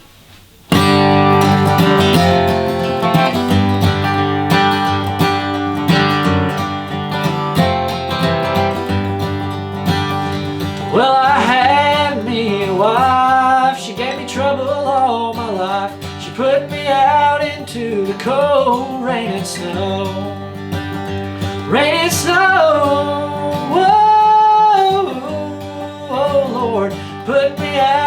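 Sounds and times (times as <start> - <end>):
person singing: 10.8 - 28.0.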